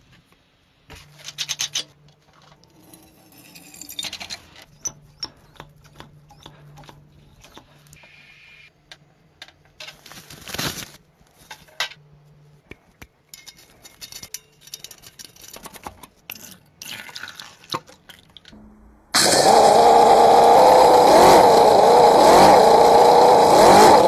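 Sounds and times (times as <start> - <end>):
parts rattling: 1.0 - 7.9
small hard parts clicking: 13.3 - 17.0.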